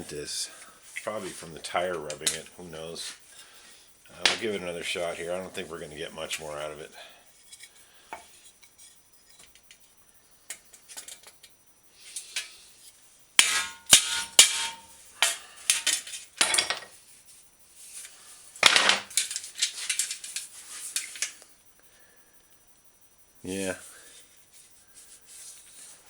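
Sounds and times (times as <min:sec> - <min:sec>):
mallet hammering metal fender: 0:13.4 - 0:16.6.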